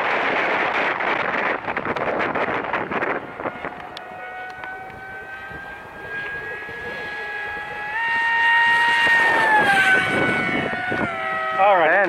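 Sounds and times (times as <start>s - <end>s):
model plane motor whining: 0.2s - 12.0s.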